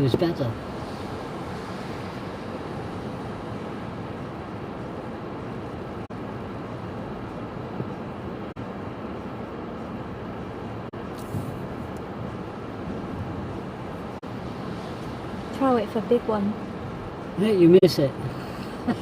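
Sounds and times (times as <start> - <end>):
storm wind roaring: 0.0 - 17.3
rough sea at seawall: 0.0 - 19.0
wind buffeting microphone: 10.7 - 17.2.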